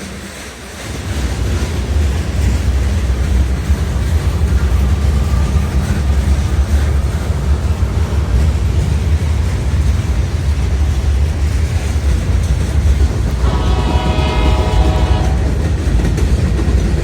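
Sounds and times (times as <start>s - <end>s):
freight train rumbling by: 0.0s - 17.0s
locomotive air horn blast: 13.3s - 15.7s.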